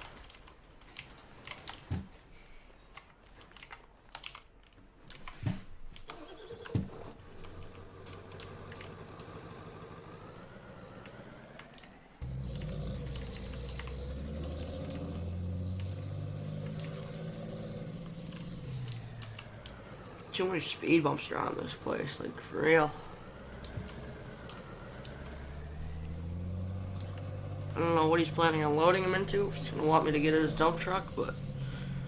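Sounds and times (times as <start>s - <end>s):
vehicle engine running: 6.9s - 32.0s
faint hum with rising tone: 7.6s - 32.0s.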